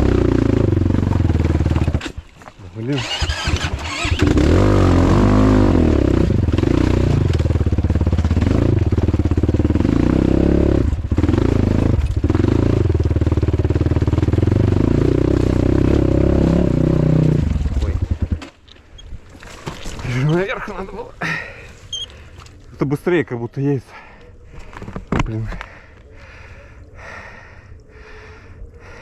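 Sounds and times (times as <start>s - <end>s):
motorcycle engine under throttle: 0.0s - 2.2s, 2.8s - 18.6s.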